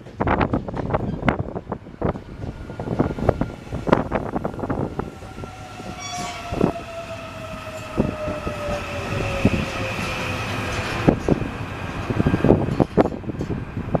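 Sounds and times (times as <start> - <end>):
subway train motors whining: 0.0 - 14.0.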